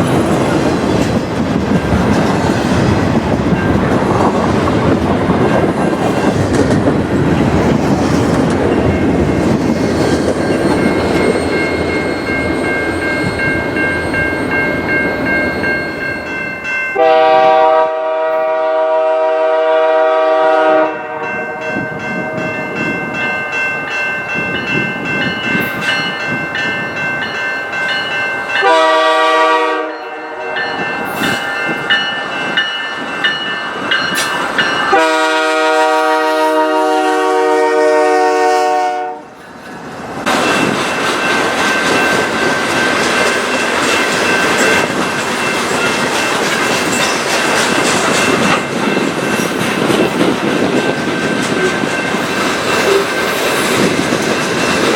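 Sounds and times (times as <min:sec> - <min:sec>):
train rumbling past: 0:00.0 - 0:54.9
locomotive air horn: 0:17.0 - 0:21.6, 0:28.6 - 0:30.6, 0:34.9 - 0:39.3.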